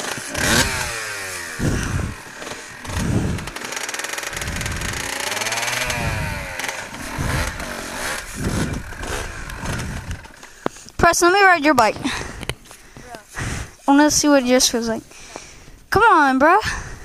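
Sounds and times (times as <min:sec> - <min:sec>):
pit bike engine revving: 0:00.0 - 0:12.4.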